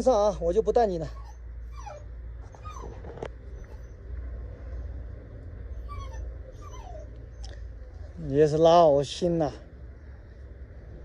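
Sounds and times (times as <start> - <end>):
dog whimpering: 1.0 - 4.0, 5.8 - 7.5.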